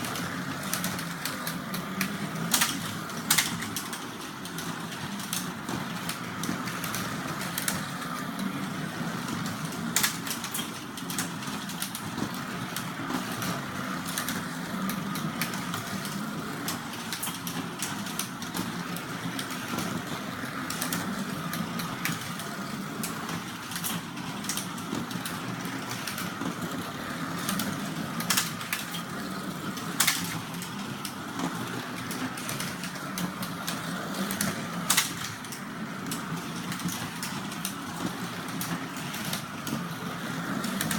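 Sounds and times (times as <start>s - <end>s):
cars rattling on plastic track: 0.0s - 40.9s
slot car motors whirring: 12.7s - 40.9s.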